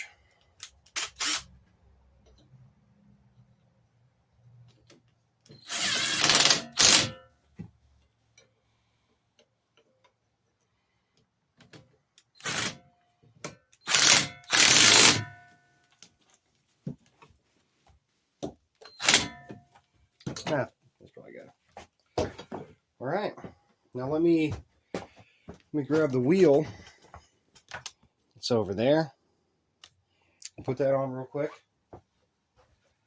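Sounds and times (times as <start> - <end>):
power tool tightening bolts: 0.0 - 1.6, 5.5 - 7.2, 12.2 - 12.8, 13.7 - 15.3, 18.8 - 19.5.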